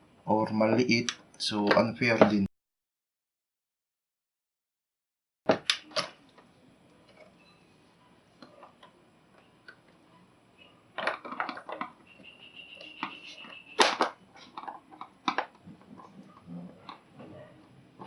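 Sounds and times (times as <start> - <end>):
clicks and knocks of handling wiring: 11.0 - 12.0, 12.8 - 17.4
steady high squeak: 11.9 - 13.8.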